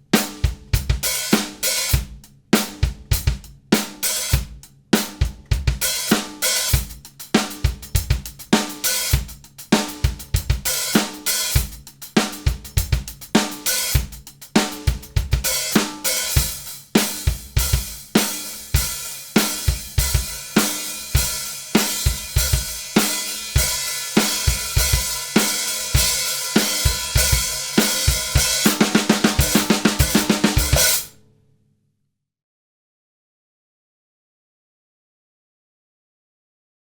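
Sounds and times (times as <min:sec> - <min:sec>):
bass drum and snare: 0:00.0 - 0:31.1.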